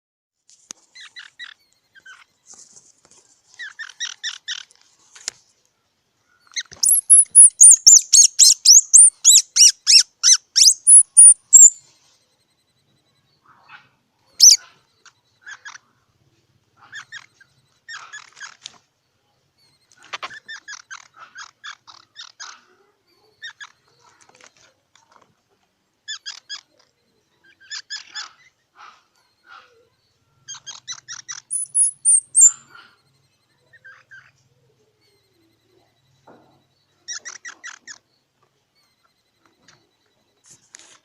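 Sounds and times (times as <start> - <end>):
squirrel sharp squeak: 0.9 - 2.6, 3.5 - 4.8, 6.4 - 11.8, 13.4 - 15.9, 16.8 - 18.8, 19.6 - 25.2, 26.1 - 38.2
squirrel chattering: 3.6 - 4.7, 6.4 - 11.8, 14.4 - 15.9, 16.8 - 18.7, 19.6 - 25.2, 26.0 - 38.2.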